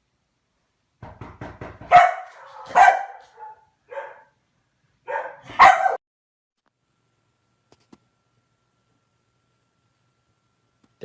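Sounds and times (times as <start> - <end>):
dog barking: 1.8 - 4.4, 5.0 - 6.0.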